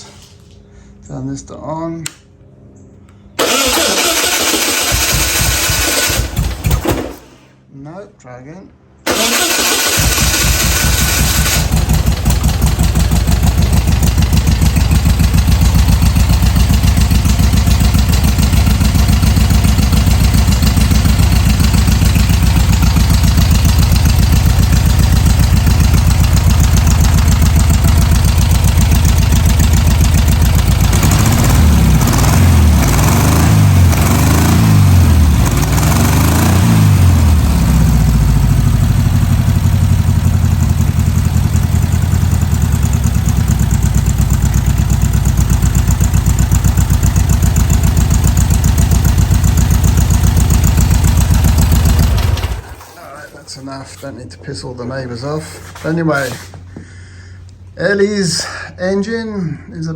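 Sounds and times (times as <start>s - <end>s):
car engine running and revving: 9.9s - 52.7s.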